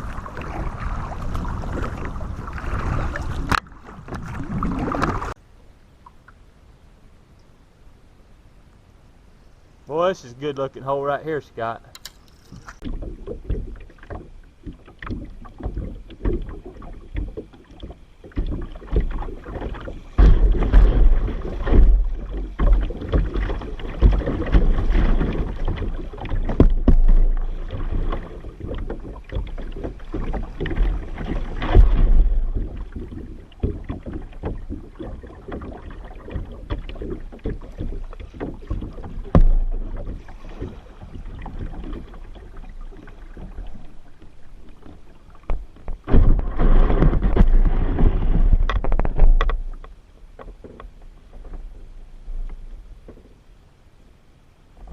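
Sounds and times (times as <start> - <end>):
paddle splashing water: 0.0 - 5.4, 9.9 - 54.9
wind buffeting microphone: 0.0 - 5.4
knocks against kayak hull: 12.8 - 42.3, 45.4 - 51.6.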